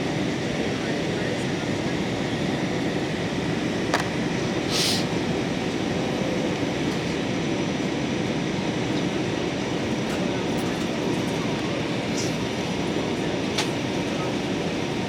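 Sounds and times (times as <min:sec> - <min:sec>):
airliner cabin roar: 0:00.0 - 0:15.0
short hiss: 0:04.7 - 0:05.1.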